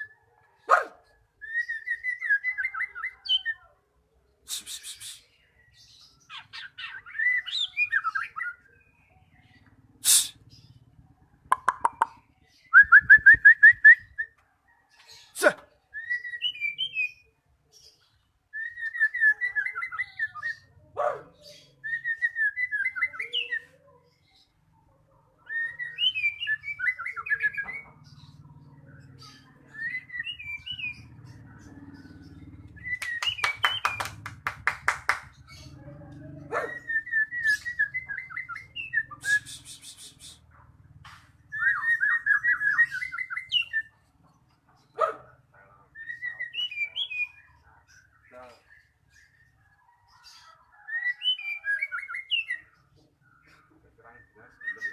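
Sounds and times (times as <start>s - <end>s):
bird singing whistles and trills: 1.4s - 3.7s, 4.5s - 9.1s, 11.6s - 14.4s, 15.9s - 17.3s, 18.0s - 20.8s, 21.5s - 23.8s, 25.4s - 28.1s, 29.0s - 34.2s, 36.5s - 40.6s, 41.4s - 44.0s, 45.9s - 48.1s, 49.2s - 52.8s, 54.5s - 54.9s.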